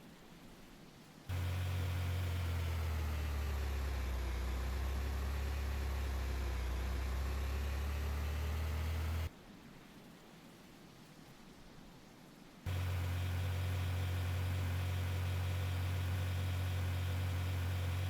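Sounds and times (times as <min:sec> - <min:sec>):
vehicle engine droning: 0:01.3 - 0:09.3, 0:12.7 - 0:18.0.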